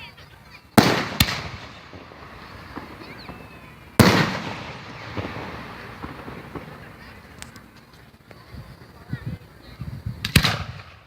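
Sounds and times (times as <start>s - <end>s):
firework bang with rumbling echo: 0.8s - 7.5s, 10.2s - 11.0s
small firework pops: 0.8s - 8.5s, 10.2s - 11.0s.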